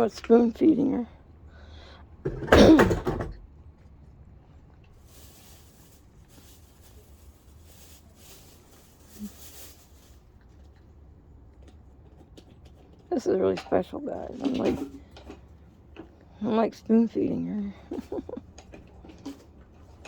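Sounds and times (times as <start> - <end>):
harsh cough-like vocal sound: 2.4 - 3.0.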